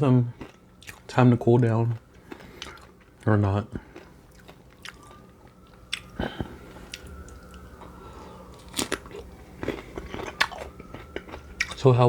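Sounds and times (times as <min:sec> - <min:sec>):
chewing: 0:00.2 - 0:12.0
crunchy bites into chicken: 0:08.6 - 0:11.8.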